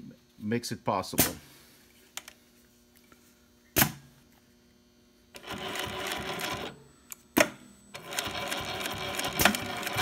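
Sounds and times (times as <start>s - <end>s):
sewing machine stitching: 5.4s - 6.8s, 8.0s - 10.0s.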